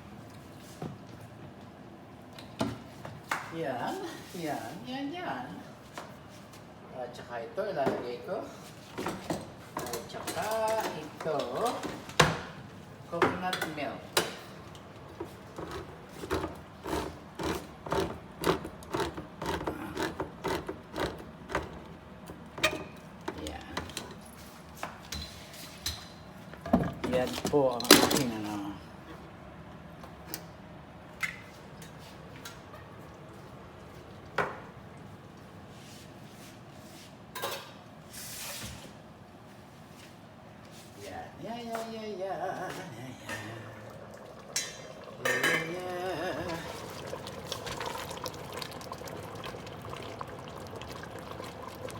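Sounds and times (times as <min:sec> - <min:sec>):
can opener ratcheting clicks: 0:15.7 - 0:21.8.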